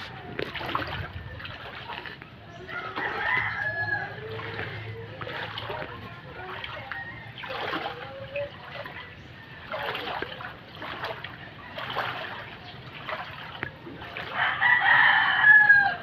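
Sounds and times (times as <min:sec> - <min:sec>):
water splashing: 0:00.0 - 0:16.0
rooster crowing: 0:02.7 - 0:04.7, 0:14.2 - 0:16.0.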